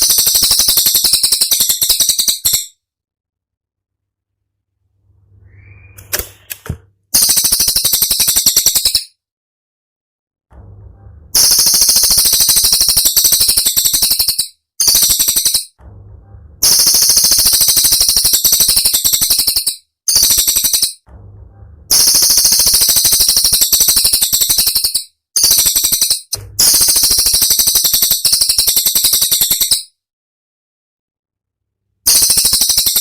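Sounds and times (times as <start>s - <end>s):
songbird rattling trills: 0.0s - 2.7s, 11.4s - 15.7s, 16.6s - 21.0s, 32.1s - 33.0s.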